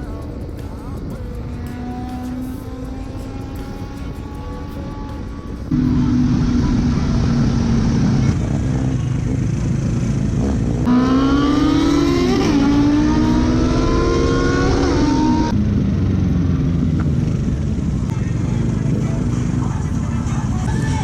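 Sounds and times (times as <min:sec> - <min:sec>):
motorcycle engine accelerating: 0:00.0 - 0:21.0
wind and road noise: 0:00.0 - 0:21.0.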